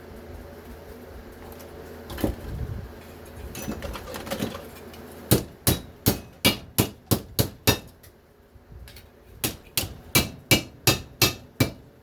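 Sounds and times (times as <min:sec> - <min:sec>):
hammer striking aluminum: 0:05.3 - 0:08.1, 0:09.4 - 0:11.9.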